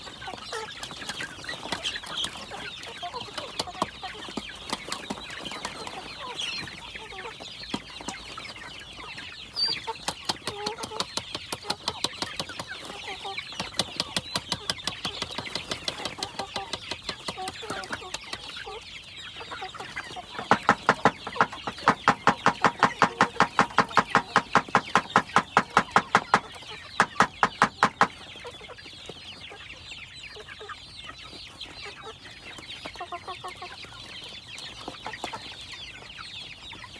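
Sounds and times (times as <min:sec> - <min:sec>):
roosters clucking: 0:00.0 - 0:36.9
sharp pecking taps: 0:10.0 - 0:12.9, 0:13.6 - 0:18.5, 0:20.4 - 0:28.2.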